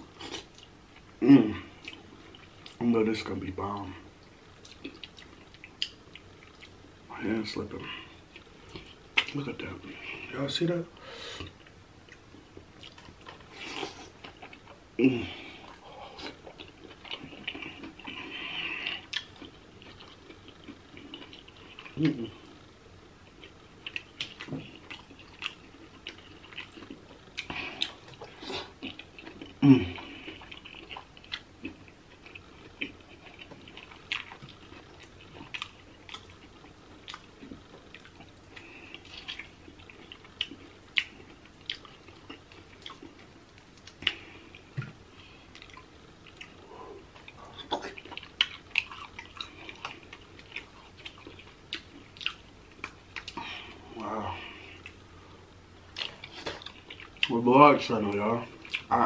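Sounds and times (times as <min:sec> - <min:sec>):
wet chewing and lip-smacking: 0:04.2 - 0:06.8, 0:11.4 - 0:14.8, 0:15.6 - 0:22.2, 0:23.3 - 0:53.5, 0:55.8 - 0:57.4, 0:58.6 - 0:58.9.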